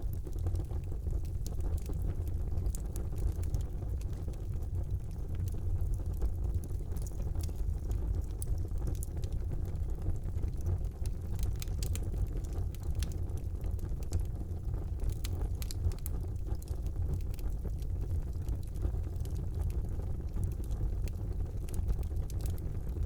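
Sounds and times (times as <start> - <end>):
fire crackles and pops: 0.0 - 23.0
fire flames rumbling: 0.0 - 23.0.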